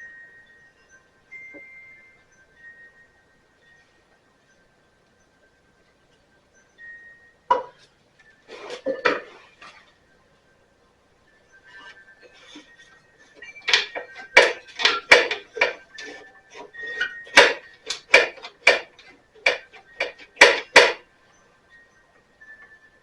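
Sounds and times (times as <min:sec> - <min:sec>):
metallic clinks and clanks: 0:12.2 - 0:21.0.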